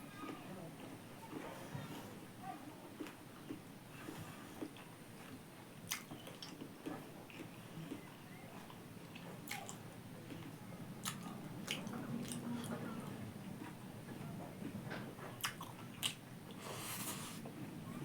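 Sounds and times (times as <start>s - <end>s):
close chewing and biting: 3.0s - 13.8s, 14.6s - 17.4s.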